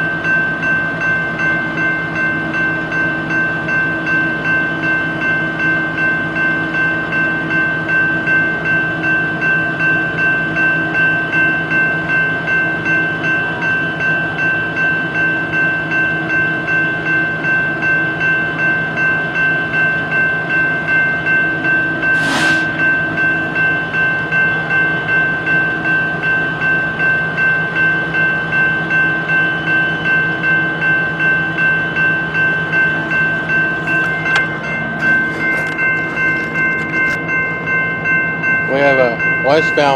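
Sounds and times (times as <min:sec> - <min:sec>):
railroad crossing bell ringing: 0:00.0 - 0:39.9
brief hiss: 0:22.1 - 0:22.8.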